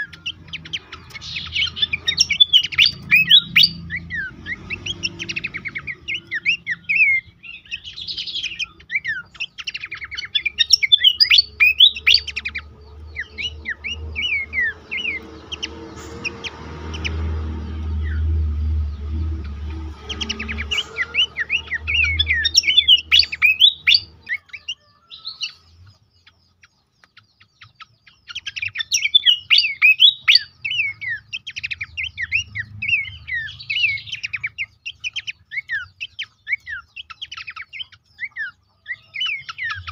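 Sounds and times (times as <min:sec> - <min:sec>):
babbler chirping: 0:00.0 - 0:39.9
low rumble: 0:12.2 - 0:23.1.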